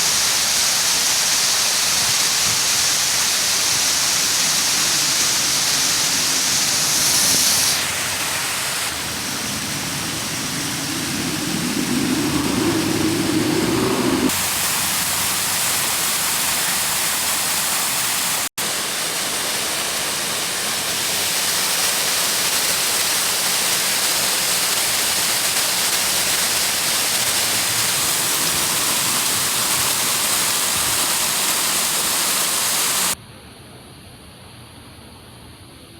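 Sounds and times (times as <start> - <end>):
fountain water rushing and splashing: 0.0 - 33.2.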